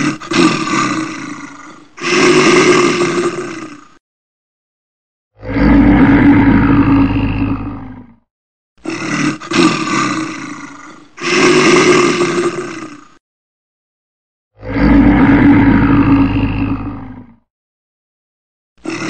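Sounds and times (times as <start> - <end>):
bear roaring: 0.0 - 4.0, 5.4 - 8.2, 8.8 - 13.2, 14.6 - 17.4, 18.8 - 19.0.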